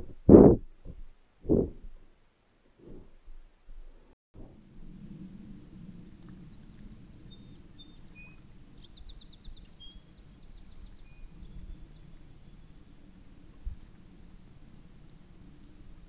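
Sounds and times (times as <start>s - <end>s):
low background rumble: 0.0s - 16.0s
songbirds chirping: 6.4s - 12.6s.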